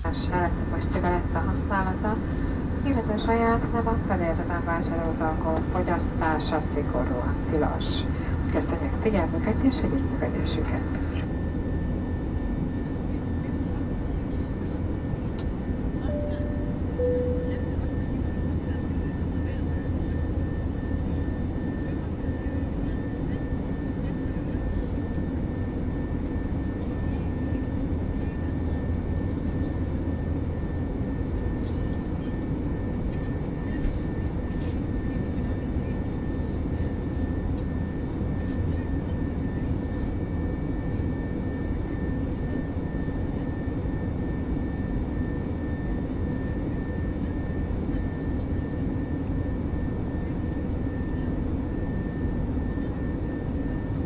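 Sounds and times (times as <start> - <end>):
jet engine and airflow noise: 0.0 - 54.0
thin steady high tone: 16.0 - 18.0.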